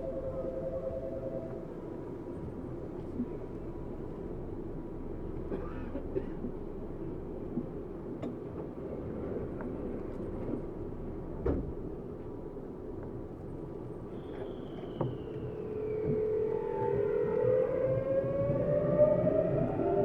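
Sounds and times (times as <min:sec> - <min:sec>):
train interior rumble: 0:00.0 - 0:20.0.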